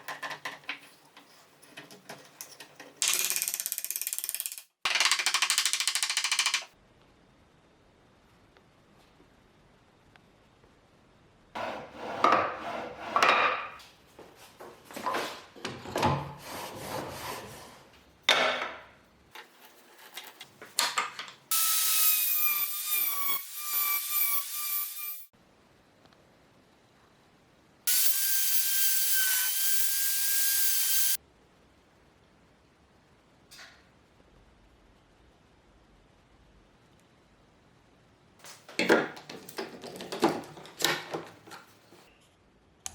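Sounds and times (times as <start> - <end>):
tool working wood: 11.6 - 13.7.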